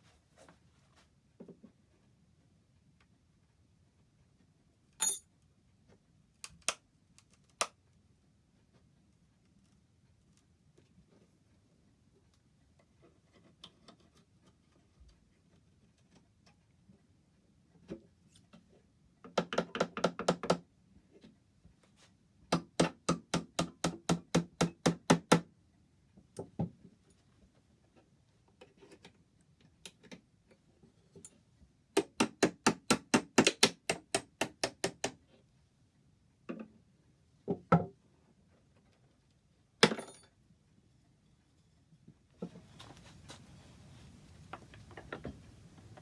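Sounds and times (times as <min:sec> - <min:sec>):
hammer tapping on wood: 0:32.0 - 0:35.2.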